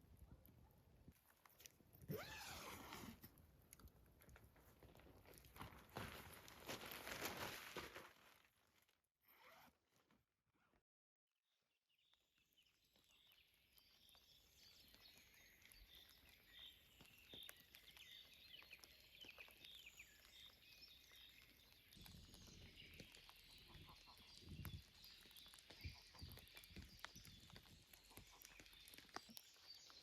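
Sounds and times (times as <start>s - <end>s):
small birds chirping: 11.5s - 30.0s.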